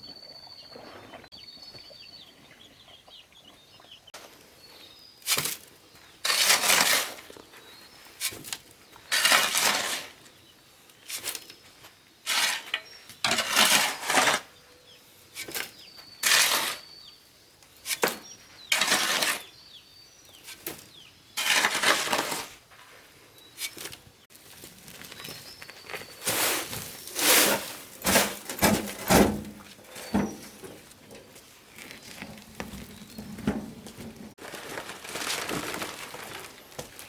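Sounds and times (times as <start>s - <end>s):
scrapes and clinks of hard materials: 12.3s - 14.5s.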